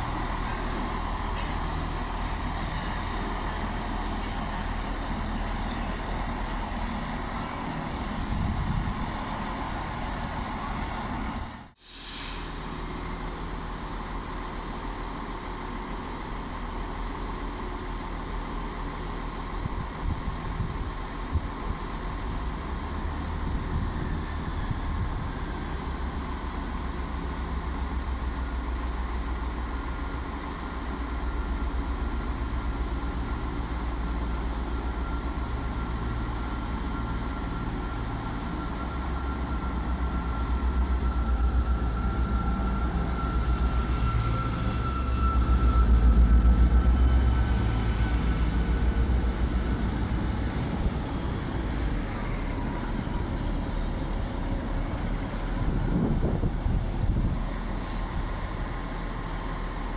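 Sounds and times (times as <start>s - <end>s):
train rumbling past: 0.0s - 59.9s
faint high whine: 34.4s - 56.6s.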